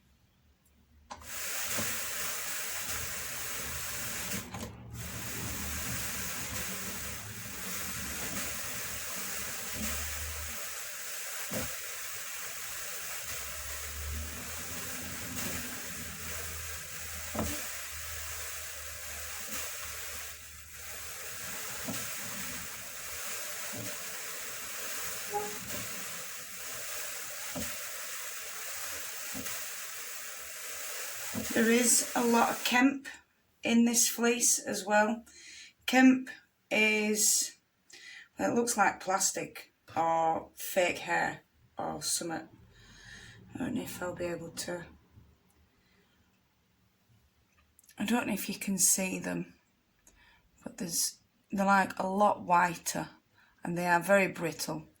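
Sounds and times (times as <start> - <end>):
drum carder brushing wool: 1.1 - 32.8.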